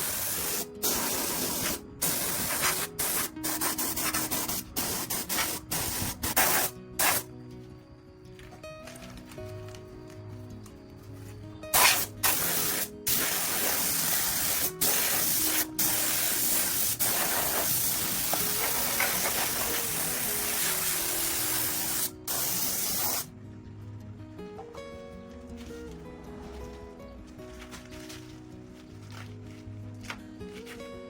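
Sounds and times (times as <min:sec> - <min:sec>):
spray hissing: 0:00.0 - 0:07.3, 0:11.8 - 0:23.3
background music: 0:00.0 - 0:31.0.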